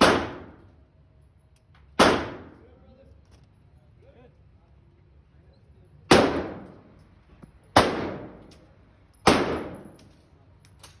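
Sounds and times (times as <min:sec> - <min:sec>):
shotgun shots: 0:00.0 - 0:00.6, 0:02.0 - 0:02.6, 0:06.1 - 0:06.8, 0:07.8 - 0:08.4, 0:09.2 - 0:09.9.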